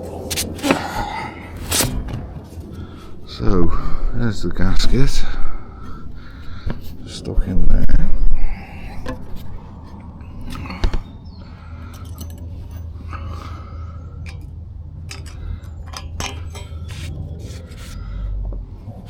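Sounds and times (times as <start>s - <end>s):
low steady hum: 0.0s - 19.0s
metal tools clicking and scraping: 11.7s - 18.0s.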